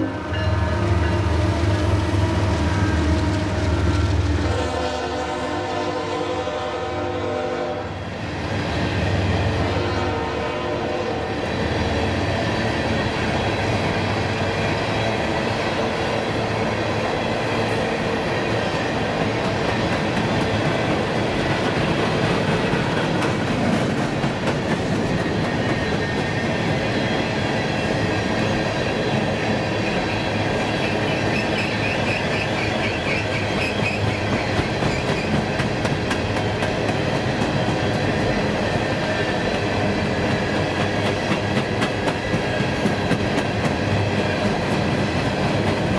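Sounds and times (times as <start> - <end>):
train wheels rumbling on rail: 0.0 - 45.9
wheel squeal: 30.7 - 35.6
wheels clacking over rail joints: 31.2 - 45.9.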